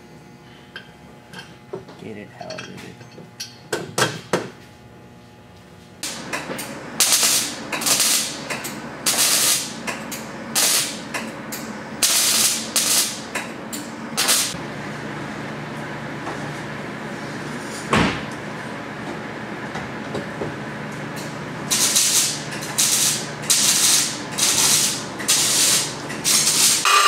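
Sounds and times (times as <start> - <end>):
bursts of hissing air: 12.0 - 13.2, 14.2 - 14.6, 21.7 - 26.9
motor running: 21.7 - 27.0.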